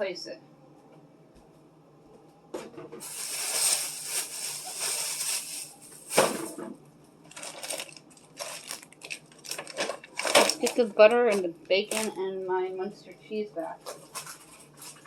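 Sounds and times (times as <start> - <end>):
containers clinking set down: 2.6 - 6.8
plastic packaging crinkling: 3.0 - 6.6, 7.3 - 12.2, 13.8 - 15.0.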